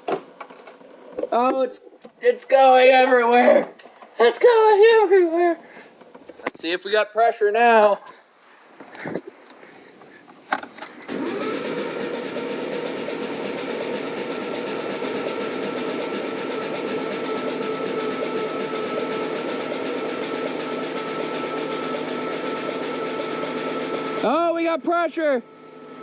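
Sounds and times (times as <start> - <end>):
starter motor cranking engine: 10.6 - 24.4.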